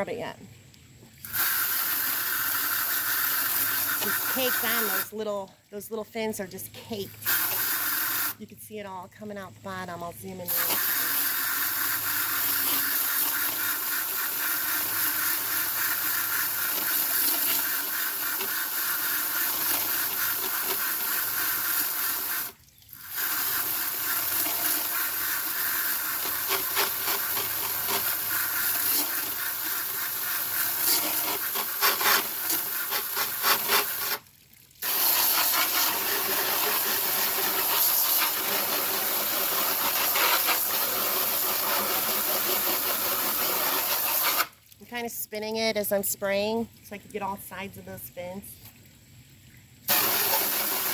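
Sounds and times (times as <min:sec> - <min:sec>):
hose spraying water on metal fins: 0:01.1 - 0:05.4, 0:07.1 - 0:08.4, 0:10.2 - 0:44.8, 0:49.9 - 0:50.9.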